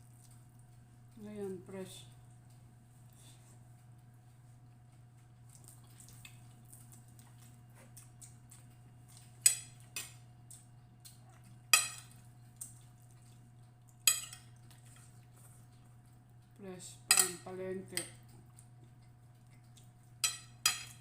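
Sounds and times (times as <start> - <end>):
steady low hum: 0.0 - 21.0
cutlery clinking on a plate: 11.7 - 12.1, 14.1 - 14.5, 17.1 - 17.4, 20.2 - 21.0.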